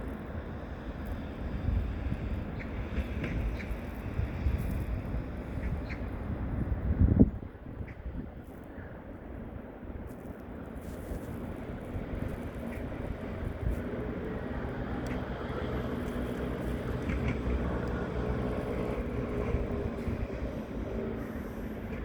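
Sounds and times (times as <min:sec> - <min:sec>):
vehicle engine rumble: 0:10.2 - 0:22.0.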